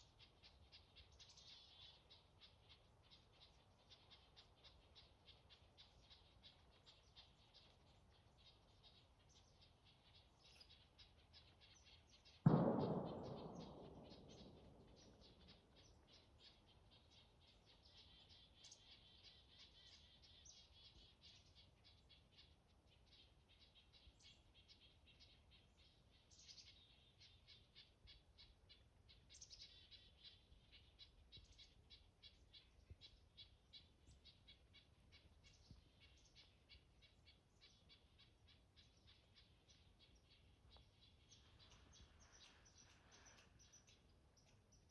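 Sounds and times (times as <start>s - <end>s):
birds chattering: 0.1s - 22.5s
loud thump: 12.5s - 15.1s.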